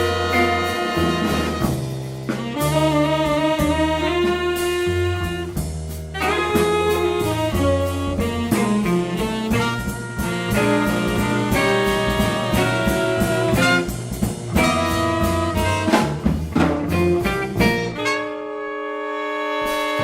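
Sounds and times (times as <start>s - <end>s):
guitar: 0.0s - 2.7s, 6.2s - 18.2s
saxophones: 0.0s - 5.6s, 6.2s - 16.2s, 16.9s - 20.0s
bass: 0.0s - 20.0s
drums: 0.0s - 20.0s
trumpet: 0.0s - 20.0s.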